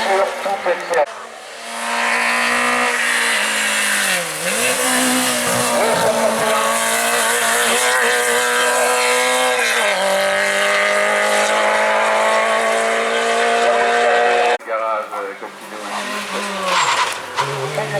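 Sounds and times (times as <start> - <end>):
race car engine running hard: 1.1 - 14.6.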